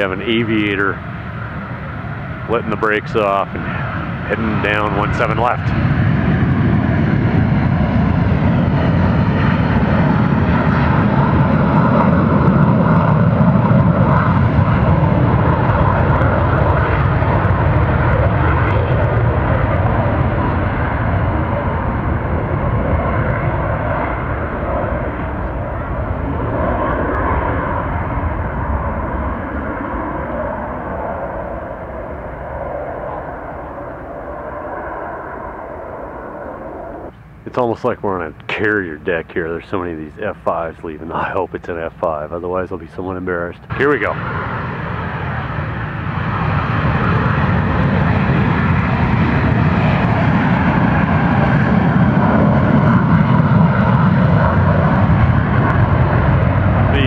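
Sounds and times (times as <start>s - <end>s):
jet engine rushing: 0.0s - 57.0s.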